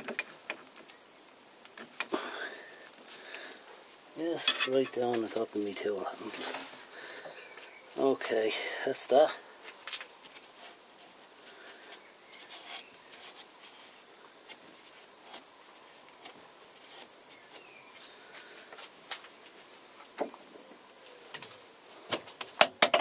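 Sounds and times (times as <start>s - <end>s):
faint handling clicks and knocks: 0.0s - 1.0s.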